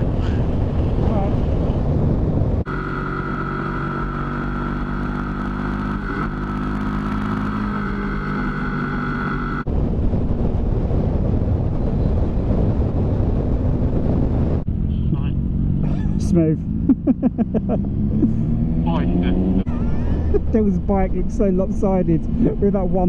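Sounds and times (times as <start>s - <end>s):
motorcycle engine running: 0.0s - 9.7s
wind rushing over microphone: 0.0s - 23.0s.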